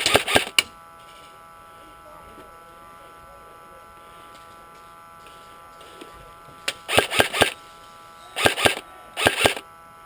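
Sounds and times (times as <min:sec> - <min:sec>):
airsoft gun shots: 0:00.0 - 0:00.6, 0:06.9 - 0:07.6, 0:08.4 - 0:09.6
faint electrical whine: 0:00.0 - 0:10.0.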